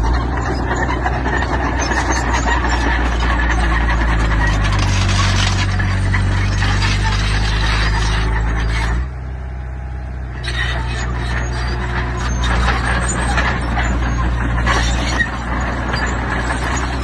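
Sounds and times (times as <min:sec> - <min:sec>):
rattling and clanking: 0:00.0 - 0:09.1, 0:10.4 - 0:17.0
diesel engine running: 0:00.0 - 0:17.0.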